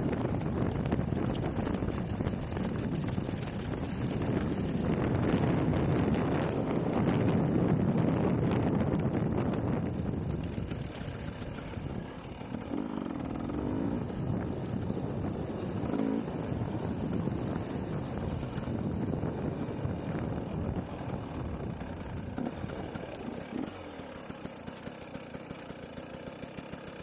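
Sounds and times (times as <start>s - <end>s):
dirt bike engine idling: 0.0s - 27.0s.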